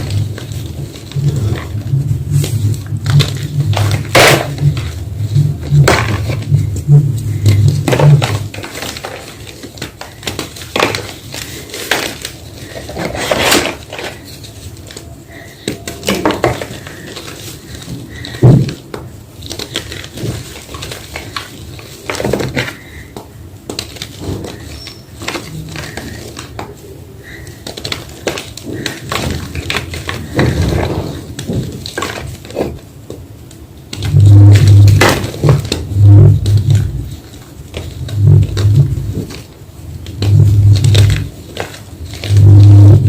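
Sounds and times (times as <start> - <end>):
low hum: 0.0 - 8.8, 33.9 - 43.0.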